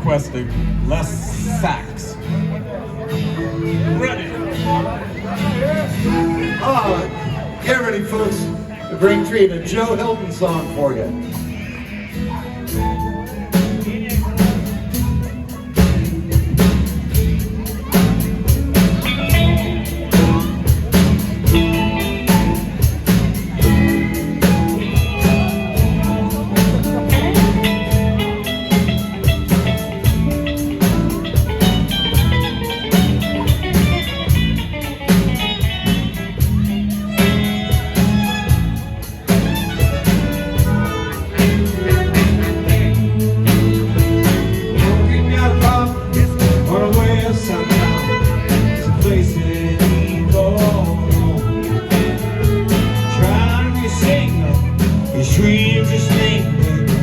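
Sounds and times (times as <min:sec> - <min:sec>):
electric guitar: 0:00.0 - 0:57.0
live band playing: 0:00.0 - 0:57.0
drum beat: 0:13.6 - 0:57.0.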